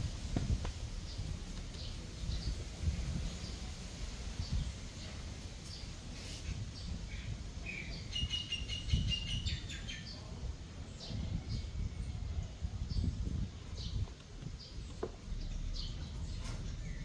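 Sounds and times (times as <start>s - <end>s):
low uneven rumble: 0.0s - 7.6s, 10.3s - 17.0s
small bird chirping: 6.8s - 10.2s.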